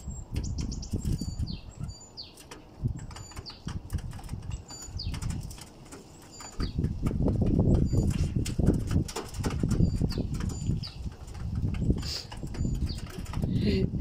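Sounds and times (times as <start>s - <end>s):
pigeons flapping wings: 2.4s - 13.6s.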